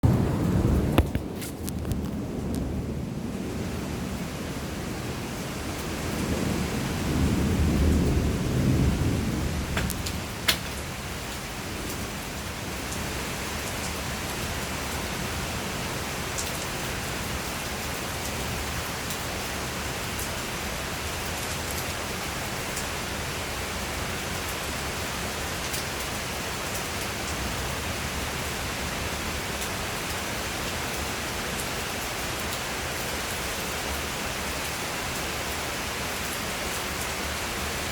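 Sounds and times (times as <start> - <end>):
low rumble of thunder: 0.0 - 31.7
steady rain: 0.0 - 37.9
raindrop ticks: 0.1 - 2.8, 9.7 - 10.9.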